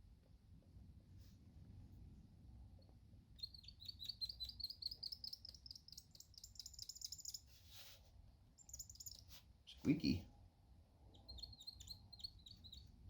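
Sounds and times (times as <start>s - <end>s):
marker squeaking on plastic: 3.4s - 7.9s, 8.6s - 9.5s, 11.1s - 13.0s.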